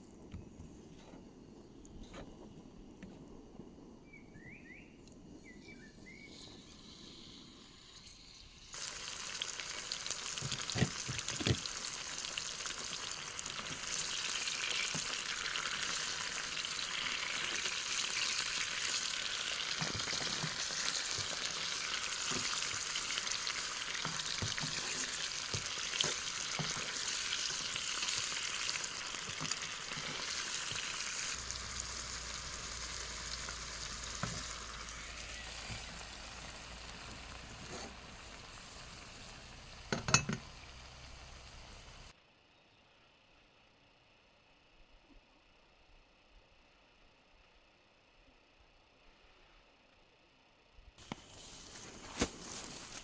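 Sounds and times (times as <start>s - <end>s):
food sizzling in a pan: 6.1s - 42.1s
utensil knocking in a pan: 39.9s - 40.6s.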